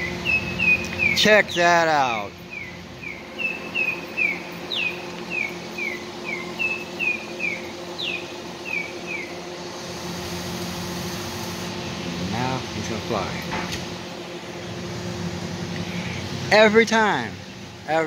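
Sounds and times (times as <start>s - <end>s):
songbird chirping: 0.0s - 1.6s, 2.4s - 9.6s.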